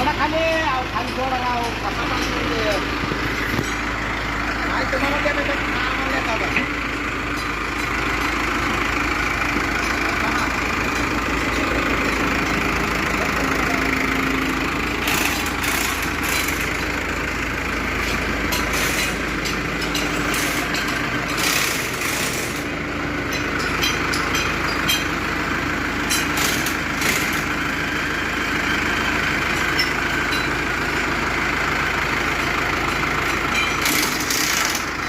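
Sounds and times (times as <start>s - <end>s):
tractor diesel engine idling: 0.0s - 35.0s
metallic knocks and clanks: 18.0s - 22.7s, 23.3s - 25.2s.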